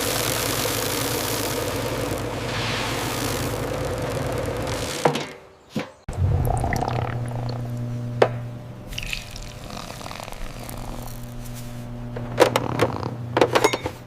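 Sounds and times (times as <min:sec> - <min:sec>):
machine humming: 0:00.0 - 0:05.5, 0:06.1 - 0:13.5
wet liquid noises: 0:06.1 - 0:07.8, 0:08.9 - 0:11.5.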